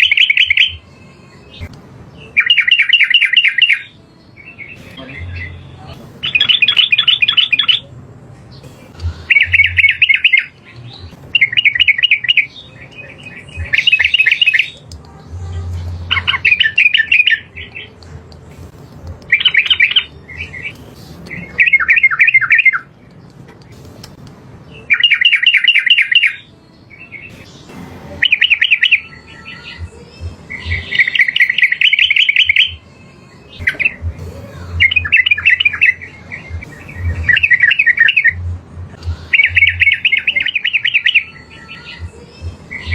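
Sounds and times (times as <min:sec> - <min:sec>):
bird singing bubbling notes: 0:09.0 - 0:14.8, 0:33.6 - 0:38.4.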